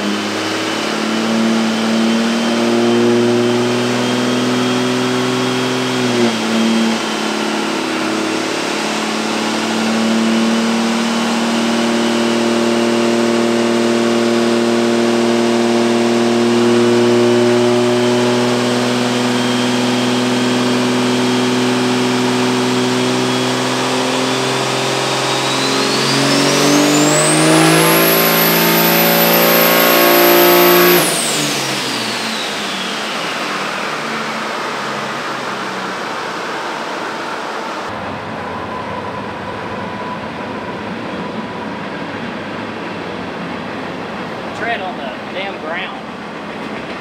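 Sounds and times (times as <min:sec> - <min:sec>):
diesel engine at full throttle: 0:00.0 - 0:47.0
turbo whistle: 0:24.6 - 0:30.3.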